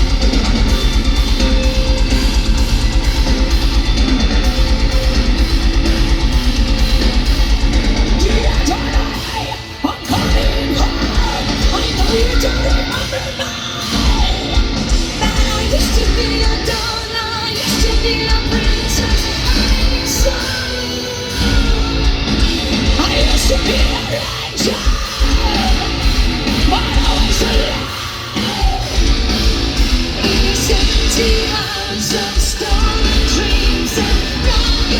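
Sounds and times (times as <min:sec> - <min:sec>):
heavy metal band playing: 0:00.0 - 0:34.9
woman singing and screaming: 0:08.2 - 0:14.6, 0:15.2 - 0:22.0, 0:30.3 - 0:34.9.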